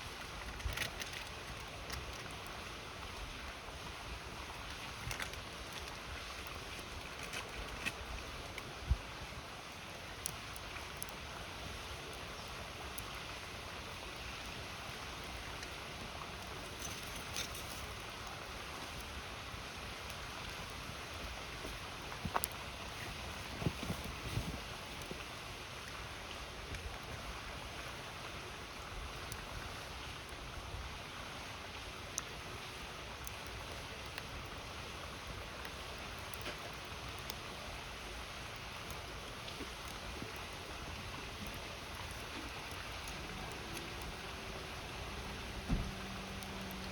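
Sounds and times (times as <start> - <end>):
campfire popping: 0.0 - 46.9
river flowing: 0.0 - 46.9
river water rushing: 36.6 - 46.9.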